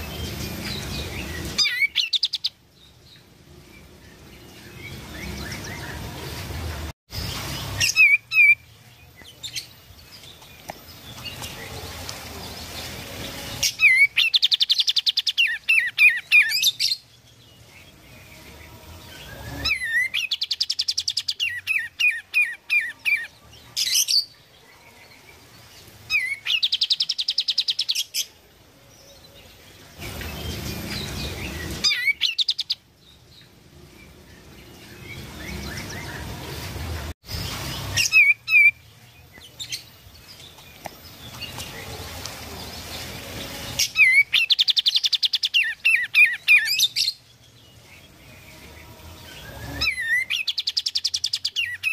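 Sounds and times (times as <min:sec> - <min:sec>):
songbird trilling and whistling: 0:00.0 - 0:02.6, 0:07.8 - 0:08.7, 0:13.7 - 0:17.0, 0:19.2 - 0:24.3, 0:30.2 - 0:32.8, 0:37.7 - 0:38.8, 0:43.8 - 0:47.2, 0:49.3 - 0:51.9.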